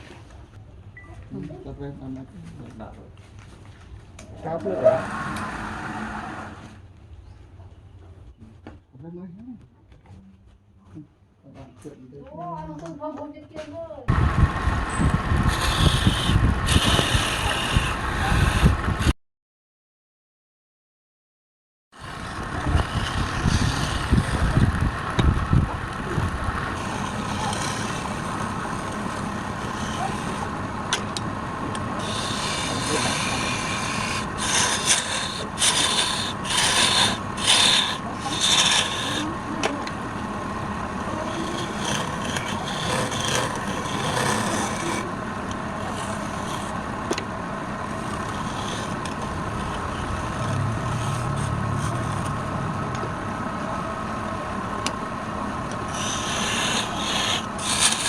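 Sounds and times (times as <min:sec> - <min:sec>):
wood lathe humming: 0:14.4 - 0:19.1, 0:22.0 - 0:58.0
tool scraping spinning wood: 0:15.1 - 0:19.1, 0:22.0 - 0:53.0, 0:55.7 - 0:58.0.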